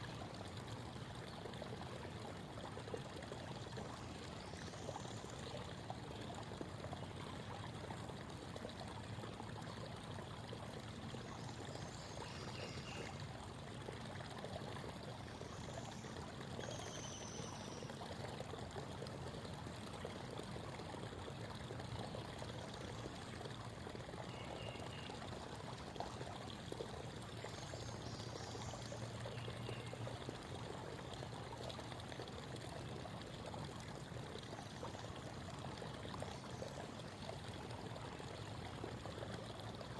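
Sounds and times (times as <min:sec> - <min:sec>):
creek water babbling: 0:00.0 - 0:39.9.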